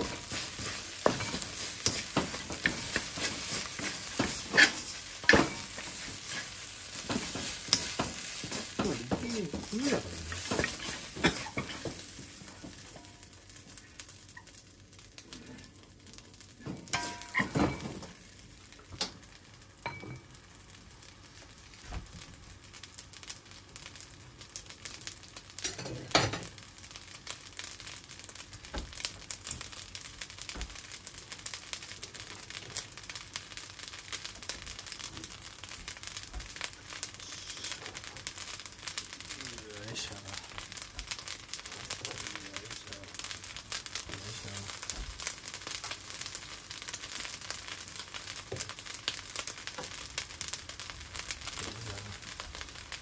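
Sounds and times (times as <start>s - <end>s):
spatula scraping and knocking wok: 0.0s - 13.2s, 16.6s - 18.2s
rice sizzling in a wok: 0.0s - 53.0s.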